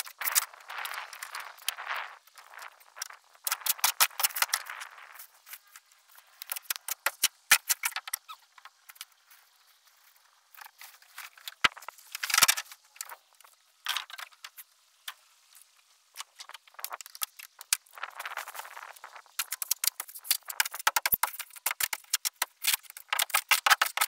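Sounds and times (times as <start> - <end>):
scraping and crunching of rotten wood: 3.4 - 13.2, 16.2 - 24.0.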